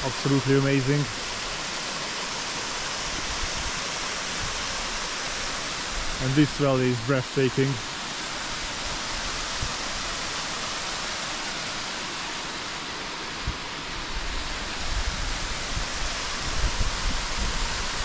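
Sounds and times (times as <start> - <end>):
waterfall roaring: 0.0 - 18.0
wind buffeting microphone: 13.4 - 18.0.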